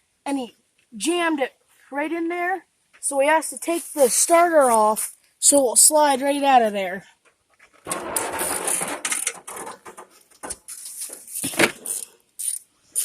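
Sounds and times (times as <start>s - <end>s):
metal clicks and knocks: 7.2s - 12.1s
hand tools scraping metal: 7.8s - 13.0s.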